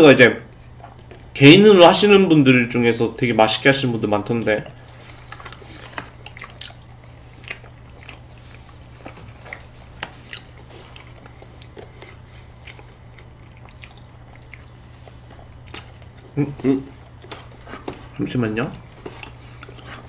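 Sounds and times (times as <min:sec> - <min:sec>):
steady low hum: 0:00.0 - 0:20.0
person chewing pastry: 0:04.3 - 0:20.0.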